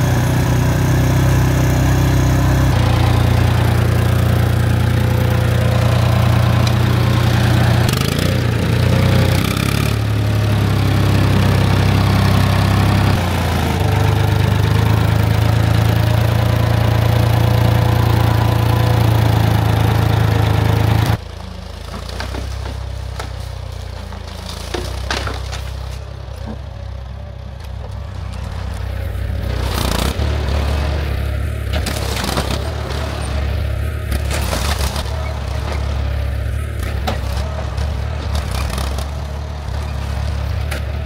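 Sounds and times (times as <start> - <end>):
engine running loud: 0.0 - 23.3, 24.1 - 41.0
tractor engine running: 0.0 - 41.0
wood knocking and cracking: 21.9 - 26.6.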